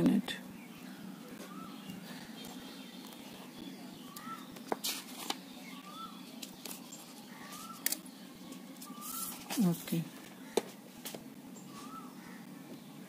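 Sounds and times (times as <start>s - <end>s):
paper clicks and rustles: 4.6s - 5.5s, 6.4s - 8.0s
bird whistling: 8.8s - 9.4s.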